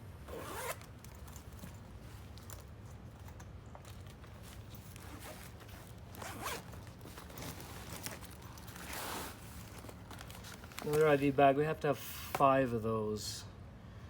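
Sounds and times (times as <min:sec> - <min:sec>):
zipper being opened: 0:00.2 - 0:02.2, 0:04.5 - 0:10.9.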